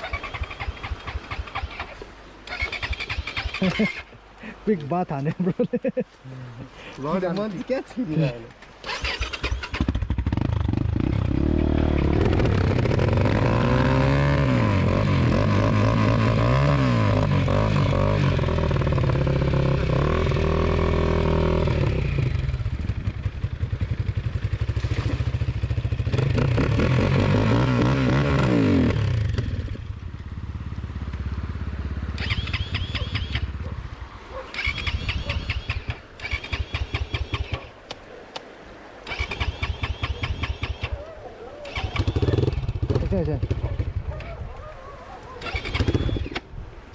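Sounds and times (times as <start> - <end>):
dirt bike engine revving: 0.0 - 4.1, 8.8 - 29.8, 30.4 - 37.8, 39.0 - 41.0, 41.6 - 44.0, 45.4 - 46.4.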